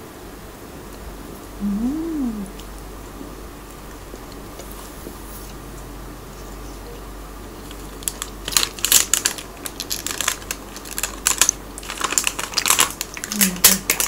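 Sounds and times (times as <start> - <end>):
plastic squeeze bottle crackling: 8.0 - 14.0.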